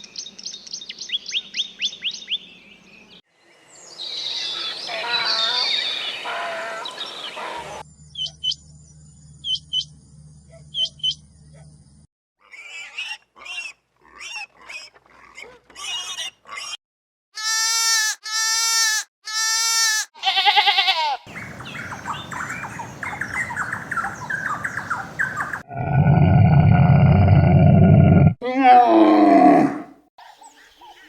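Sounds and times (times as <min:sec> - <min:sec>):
animal calls: 0:21.3 - 0:26.2
dense noisy animal chattering: 0:21.3 - 0:26.5.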